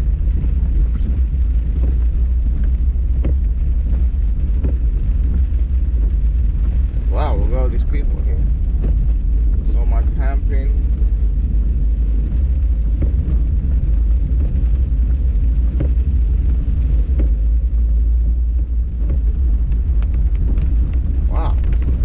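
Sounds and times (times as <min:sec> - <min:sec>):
car driving rumble: 0:00.0 - 0:22.0.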